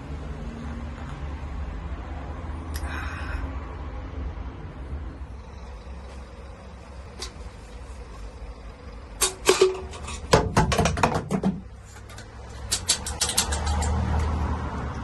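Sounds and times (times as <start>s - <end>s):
low steady rumble: 1.4s - 10.4s
clicks and knocks: 9.2s - 14.4s.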